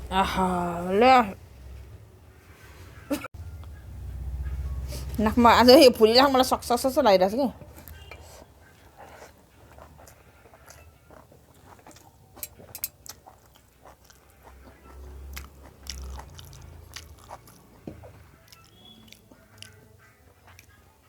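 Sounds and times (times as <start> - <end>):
biting and chewing: 7.8 - 21.0
mouth clicks and smacks: 9.8 - 19.8.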